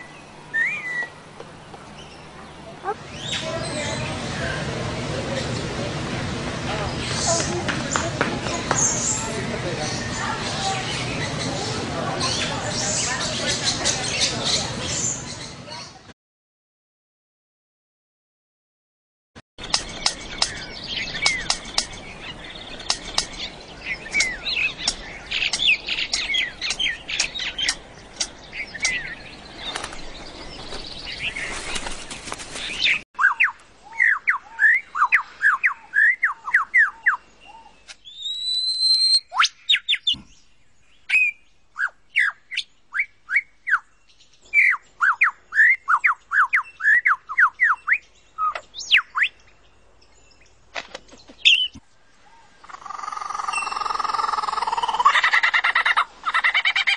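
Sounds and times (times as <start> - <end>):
birds chirping: 0.0 - 16.1, 19.6 - 56.9
bird singing sliding notes: 19.6 - 32.0, 32.6 - 56.0.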